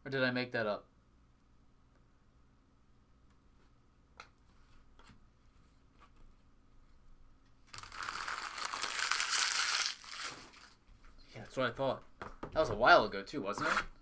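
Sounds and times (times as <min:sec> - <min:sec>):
foil wrapper crinkling and tearing: 0:07.7 - 0:10.8.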